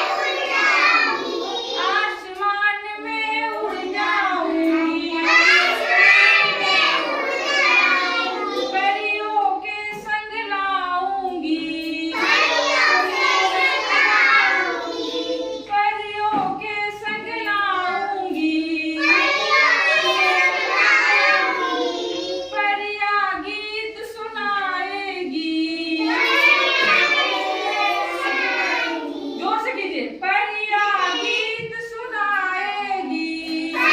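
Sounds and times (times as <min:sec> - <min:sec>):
children singing a chant: 0:00.0 - 0:29.6, 0:30.9 - 0:33.9.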